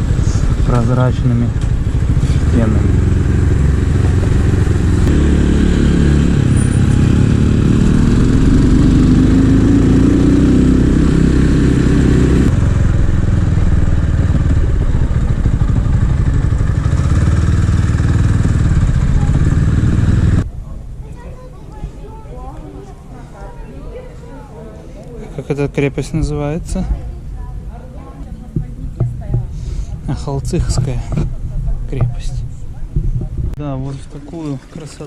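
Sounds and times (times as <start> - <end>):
small motorcycle engine running: 0.0 - 20.4.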